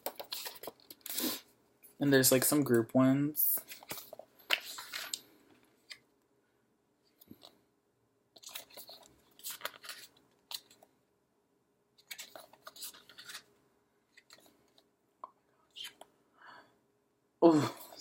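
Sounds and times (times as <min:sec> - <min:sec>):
postcards shuffling and scraping: 0:00.0 - 0:01.4, 0:03.5 - 0:06.0, 0:08.4 - 0:10.9, 0:12.0 - 0:13.5, 0:14.1 - 0:14.9, 0:15.7 - 0:16.1.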